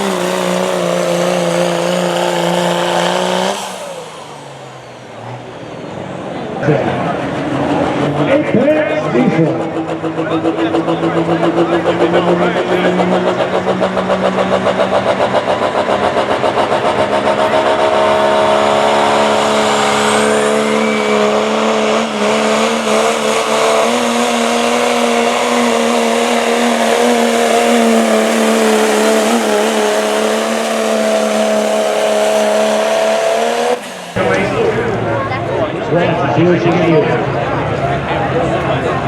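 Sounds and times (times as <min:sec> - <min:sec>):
diesel engine at full throttle: 0:00.0 - 0:39.0
turbo whistle: 0:19.8 - 0:21.6.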